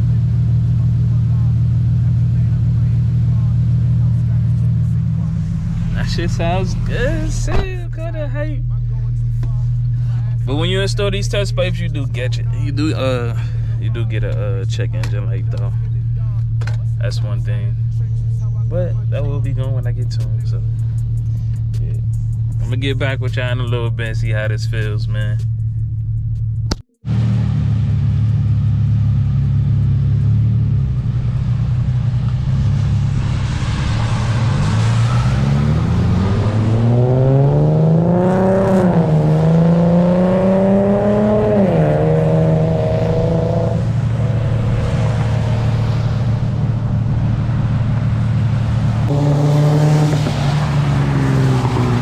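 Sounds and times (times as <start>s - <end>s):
car engine under load: 0.0s - 52.0s.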